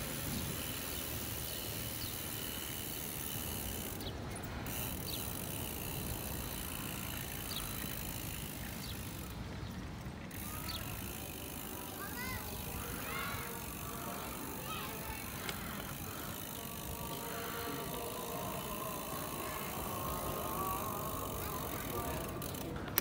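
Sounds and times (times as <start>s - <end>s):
bicycle tyres rumbling: 0.0s - 23.0s.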